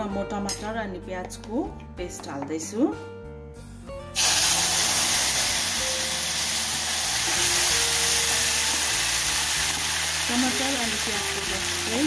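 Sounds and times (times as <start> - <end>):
paste sizzling in hot oil: 4.2 - 12.0.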